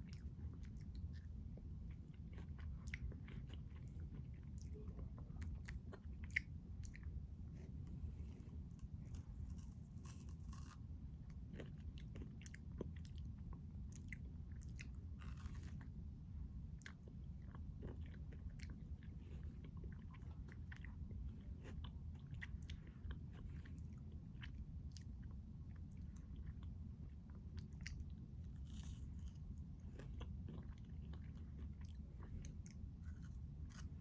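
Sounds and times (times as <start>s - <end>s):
chewing crunchy ice cream bar: 0.0s - 34.0s
low steady hum: 0.0s - 34.0s.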